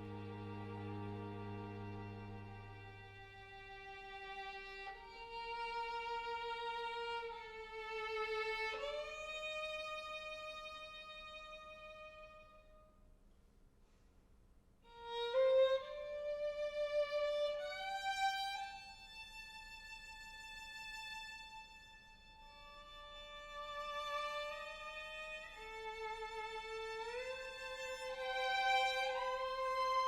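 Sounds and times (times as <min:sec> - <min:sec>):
bowed strings on long held notes: 0:00.0 - 0:12.8, 0:22.4 - 0:30.0.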